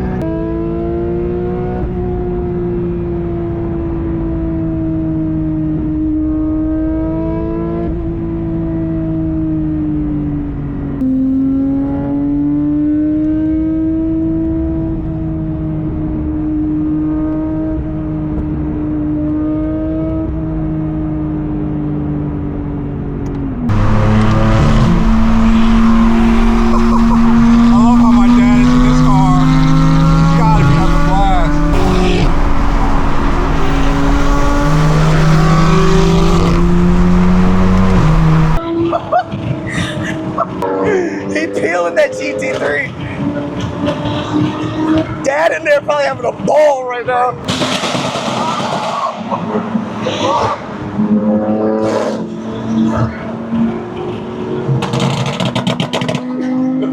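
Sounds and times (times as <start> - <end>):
car engine and exhaust droning: 7.9 - 38.7
loud motorcycle exhaust droning: 23.7 - 38.6.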